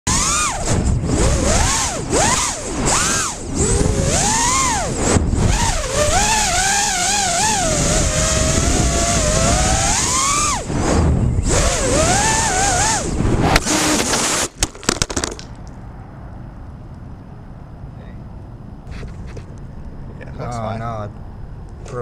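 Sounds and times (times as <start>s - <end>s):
drone motors whining: 0.1s - 14.5s
low wind rumble: 0.1s - 14.5s, 15.4s - 22.0s.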